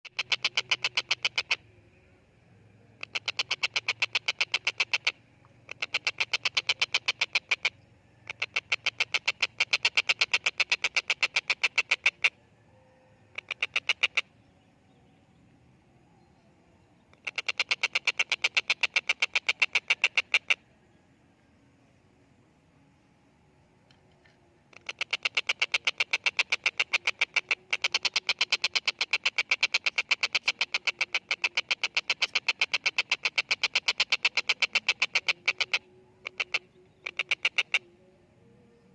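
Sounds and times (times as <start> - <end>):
kingfisher harsh rapid calls: 0.0 - 1.6, 3.0 - 12.4, 13.3 - 14.3, 17.2 - 20.6, 24.7 - 37.8.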